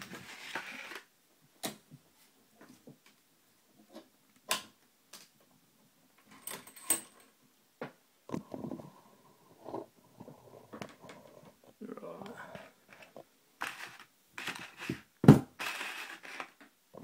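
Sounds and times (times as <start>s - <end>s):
scraping and rustling: 9.6s - 16.6s.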